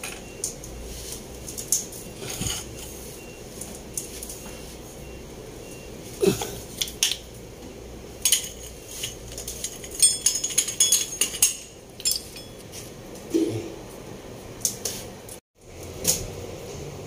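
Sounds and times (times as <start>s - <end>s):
metal tools clinking: 8.2s - 12.9s.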